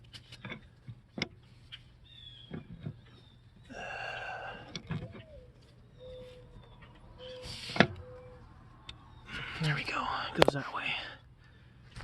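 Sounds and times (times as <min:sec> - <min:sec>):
creaking squeak: 0:04.8 - 0:08.4
thin wavering squeal: 0:04.9 - 0:09.3.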